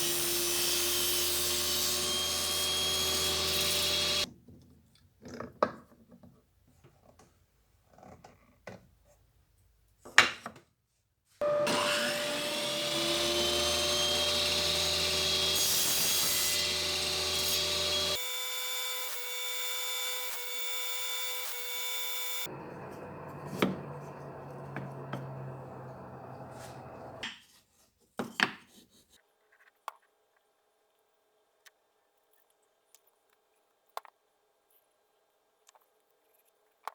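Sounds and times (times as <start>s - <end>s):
power tool whining: 1.6s - 4.2s, 11.4s - 27.2s.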